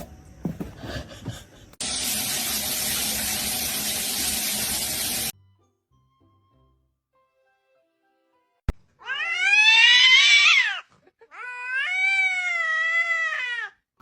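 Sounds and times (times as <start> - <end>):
cat meowing: 9.0 - 13.8.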